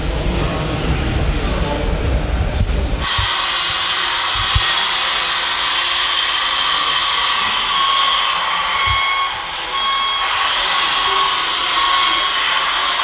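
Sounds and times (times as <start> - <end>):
small electric motors whining: 3.0 - 13.0.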